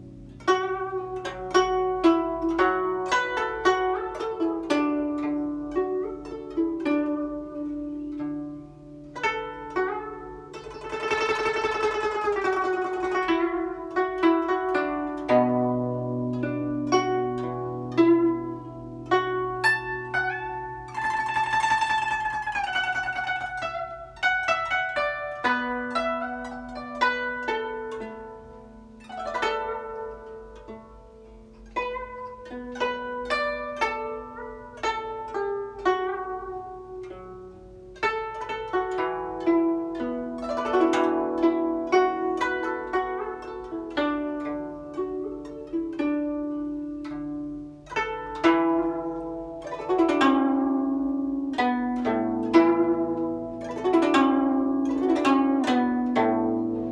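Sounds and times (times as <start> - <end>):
plucked zither: 0.0 - 56.9.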